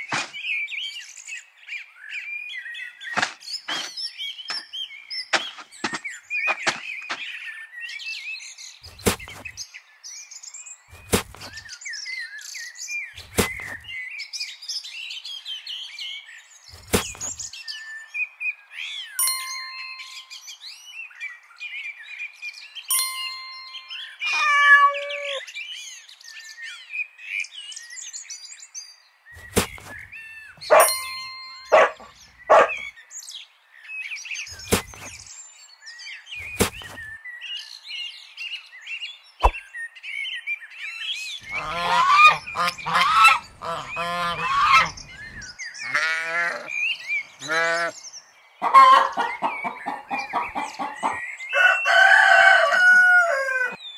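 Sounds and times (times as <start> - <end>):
bird chirping: 0.0 - 52.7
ringing chime tones: 19.2 - 20.5, 22.9 - 25.4, 30.7 - 32.1
goose honking: 41.5 - 45.0.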